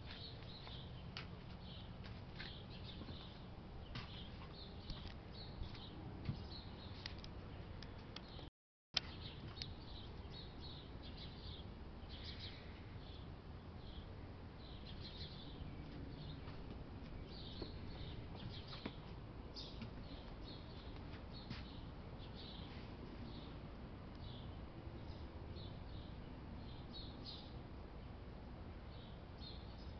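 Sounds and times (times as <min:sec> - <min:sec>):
small birds chirping: 0:00.0 - 0:27.6, 0:28.8 - 0:29.9
low outdoor background rumble: 0:00.0 - 0:29.9.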